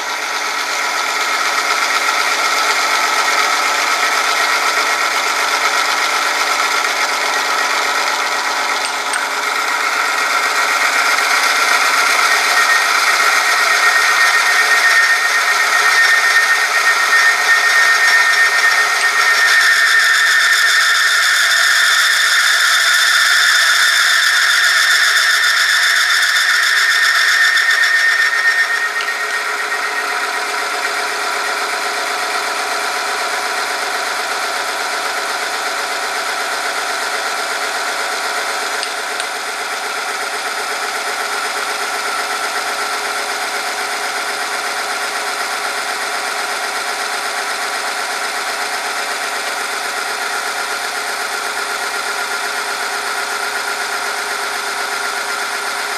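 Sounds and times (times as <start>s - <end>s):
friction test machine squealing: 0.0s - 43.4s.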